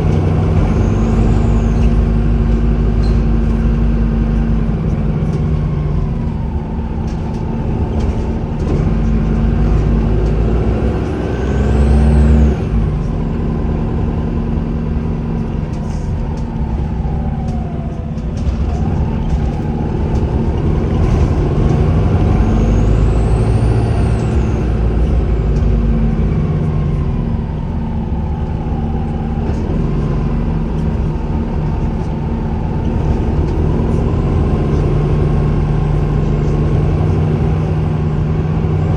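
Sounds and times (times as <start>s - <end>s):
bus engine drone: 0.0s - 38.9s
turbocharger whistle: 0.3s - 2.2s.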